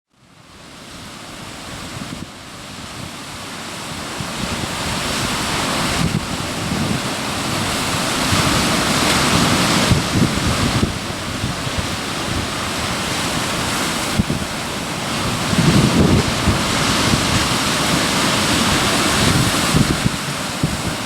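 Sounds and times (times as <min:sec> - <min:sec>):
wind rumble on microphone: 0:00.4 - 0:21.0
surf breaking on rocks: 0:00.6 - 0:21.0.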